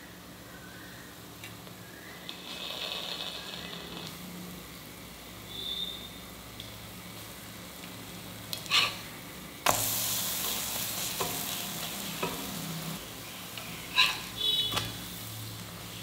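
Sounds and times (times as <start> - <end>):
food sizzling in a pan: 2.2 - 16.0
metal spatula scraping: 8.6 - 9.1, 13.6 - 15.0
spatula tapping: 11.2 - 11.6, 12.2 - 12.6.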